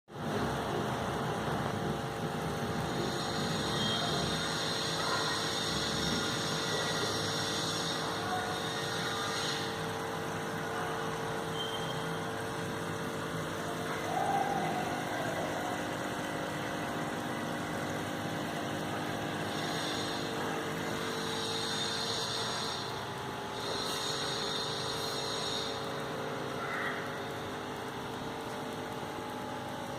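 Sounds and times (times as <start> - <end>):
aquarium pump humming: 0.1 - 29.9.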